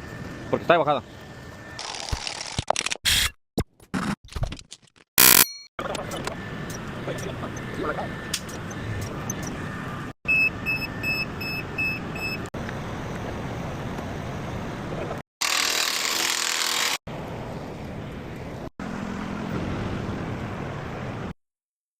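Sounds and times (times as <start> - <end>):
truck engines running: 5.8 - 15.2
reversing alarm beeping: 10.3 - 12.5.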